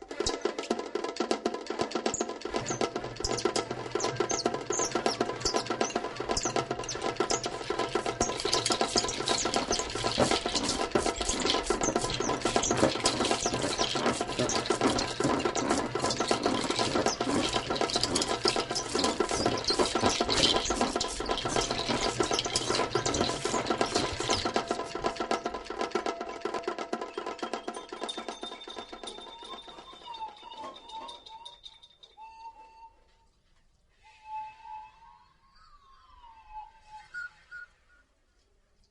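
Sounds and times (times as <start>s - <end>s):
held steady tones: 2.5s - 25.6s.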